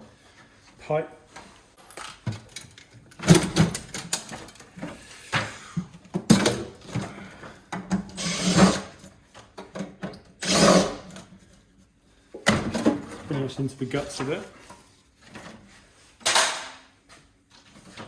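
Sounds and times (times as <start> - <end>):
power drill bursts: 8.2 - 8.8, 10.4 - 11.0.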